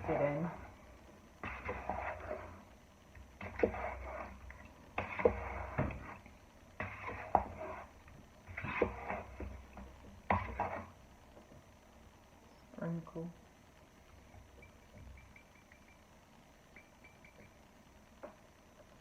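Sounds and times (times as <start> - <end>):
wet clicky stirring in bowl: 14.0 - 17.6.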